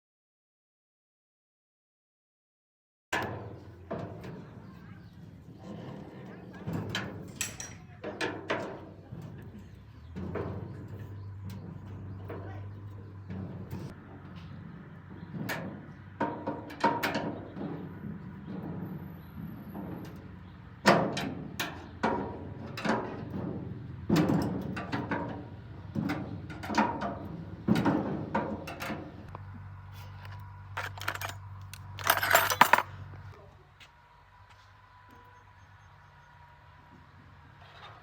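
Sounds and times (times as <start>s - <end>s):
metal parts knocking and clanking: 6.6s - 12.5s, 30.2s - 33.2s
metal rattling: 30.7s - 33.0s.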